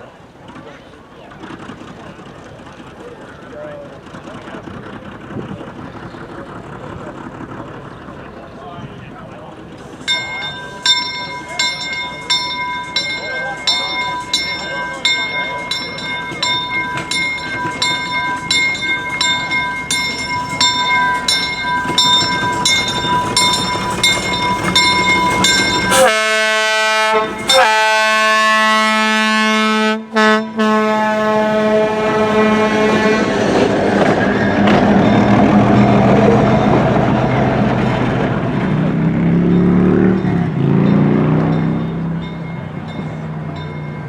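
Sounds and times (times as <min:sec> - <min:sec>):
train rumbling past: 0:00.2 - 0:44.0
bell ringing: 0:09.9 - 0:31.6
steam whistle blasts: 0:25.9 - 0:33.5.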